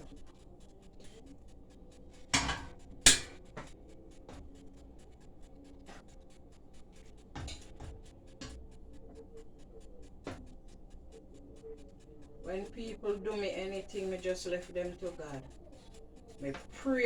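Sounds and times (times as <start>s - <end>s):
scraping clatters at stove: 2.1s - 3.7s, 7.4s - 8.6s.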